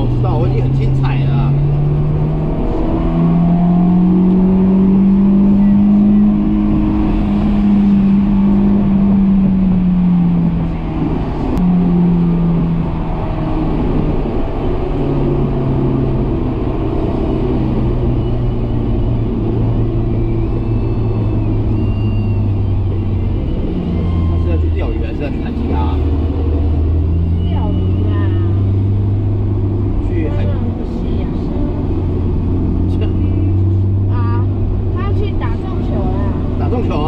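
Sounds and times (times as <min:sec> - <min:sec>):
car engine from inside cabin: 0:00.0 - 0:37.0.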